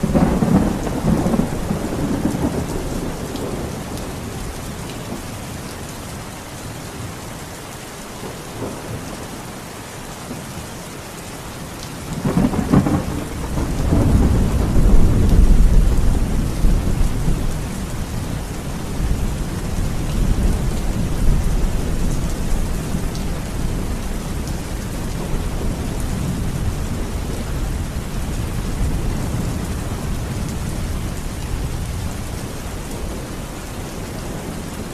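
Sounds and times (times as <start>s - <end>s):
thunder rumbling: 0.0s - 4.4s, 12.1s - 34.9s
steady rain: 0.0s - 34.9s.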